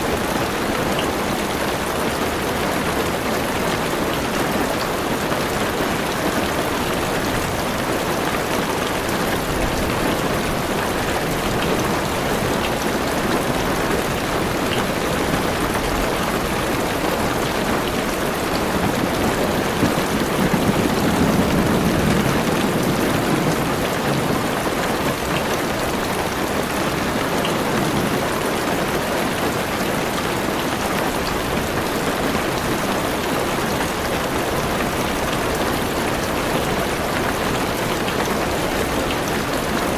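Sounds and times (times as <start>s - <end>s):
heavy rain on car roof: 0.0s - 39.9s
low rumble of thunder: 18.2s - 26.4s.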